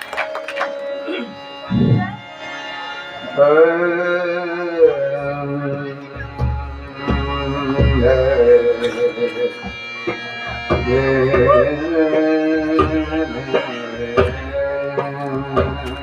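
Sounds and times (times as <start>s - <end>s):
sharp percussion strikes: 0.0s - 2.9s, 6.2s - 16.0s
sustained melody notes: 0.0s - 16.0s.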